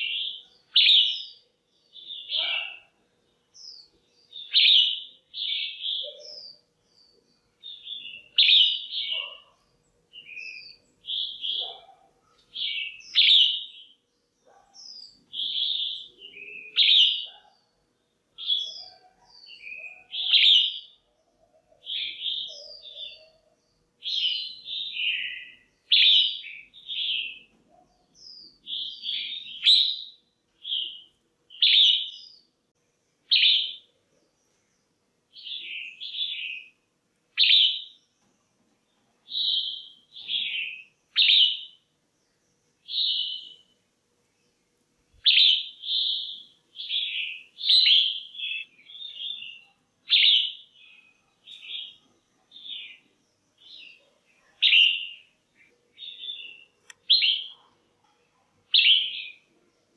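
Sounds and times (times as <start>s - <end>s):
bulbul chirpy calls: 2.0s - 3.0s, 7.6s - 13.9s, 45.2s - 55.4s, 56.0s - 57.7s.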